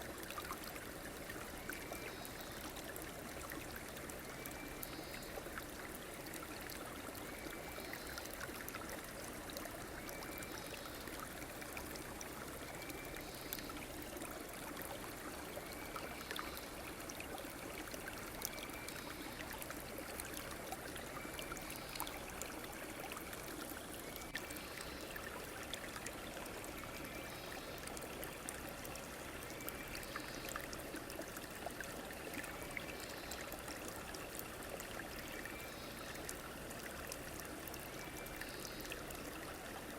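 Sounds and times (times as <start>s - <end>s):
river water trickling: 0.0s - 39.9s.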